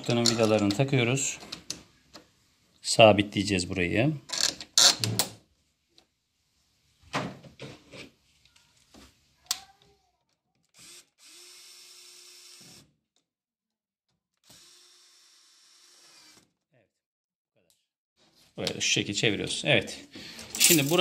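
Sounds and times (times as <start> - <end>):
cordless drill driving screws: 10.8 - 12.8, 14.4 - 16.5.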